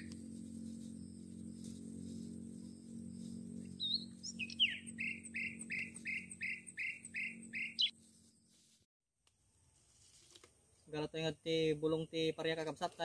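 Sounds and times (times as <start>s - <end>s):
low steady hum: 0.0s - 12.9s
bird chirping: 3.6s - 7.9s.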